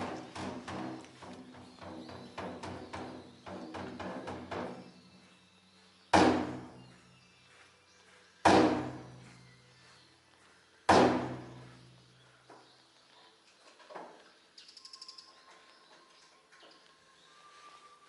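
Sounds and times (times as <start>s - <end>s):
heavy ringing impacts: 6.2s - 6.8s, 8.5s - 9.1s.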